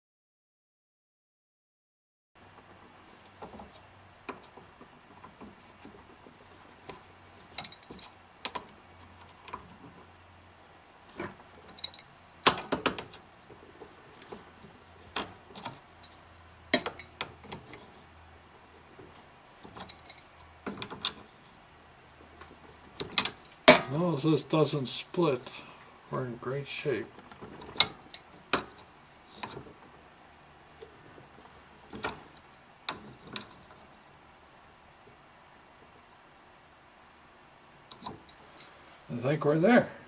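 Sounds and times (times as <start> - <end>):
low steady hum: 2.4 - 40.0
small tools clicking and clinking: 6.9 - 9.6, 11.1 - 13.2, 15.1 - 17.9, 19.7 - 21.3, 23.0 - 23.9, 27.2 - 29.6, 37.9 - 38.8.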